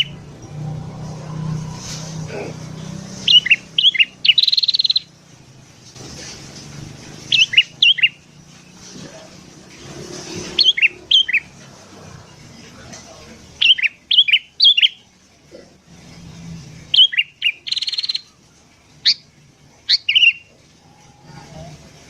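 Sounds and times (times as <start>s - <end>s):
bird whistled song: 0.0s - 0.2s, 3.2s - 5.2s, 7.3s - 8.2s, 10.6s - 11.5s, 13.6s - 15.1s, 16.9s - 18.4s, 19.0s - 21.4s
bird rattling trill: 3.0s - 5.2s, 7.2s - 8.8s, 10.0s - 11.7s.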